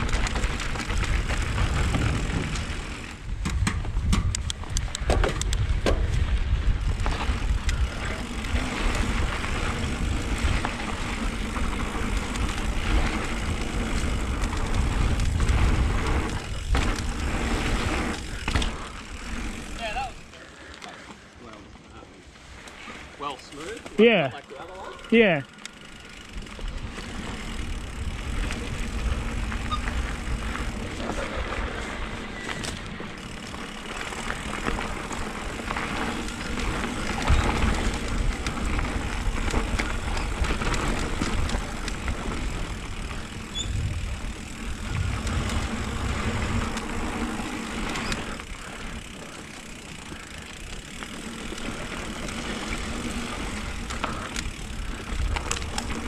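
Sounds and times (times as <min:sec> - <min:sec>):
wind buffeting microphone: 0:00.0 - 0:18.4, 0:36.5 - 0:47.5
bike jolt: 0:00.0 - 0:21.2, 0:22.5 - 0:56.0
bike rattles and clicks: 0:00.0 - 0:56.0
bike tyres rolling on dirt: 0:00.0 - 0:56.0.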